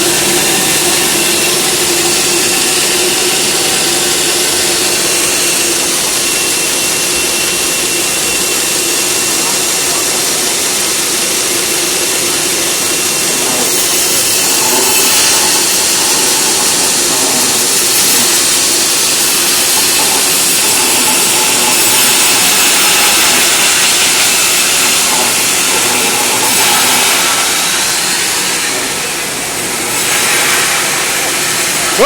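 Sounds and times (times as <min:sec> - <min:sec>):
sawmill machinery rushing noise: 0:00.0 - 0:32.0.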